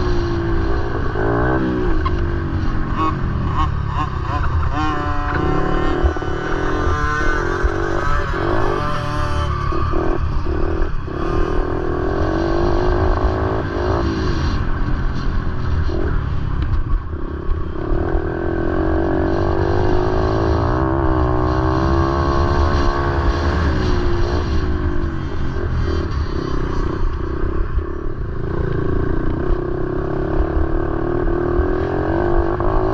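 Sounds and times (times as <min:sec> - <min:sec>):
motorcycle engines revving: 0:00.0 - 0:32.9.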